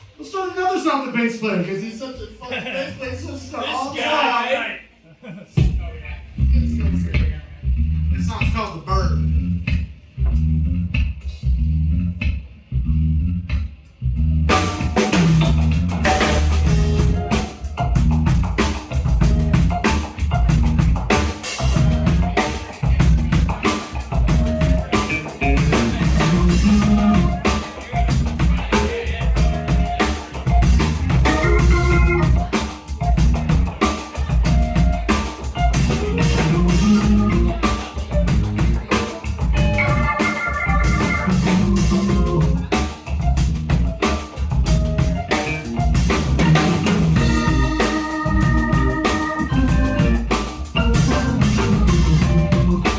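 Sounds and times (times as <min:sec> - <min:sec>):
drum kit: 0:05.5 - 0:12.7, 0:13.4 - 0:52.9
bass: 0:05.6 - 0:52.9
instrumental band music: 0:14.5 - 0:52.9.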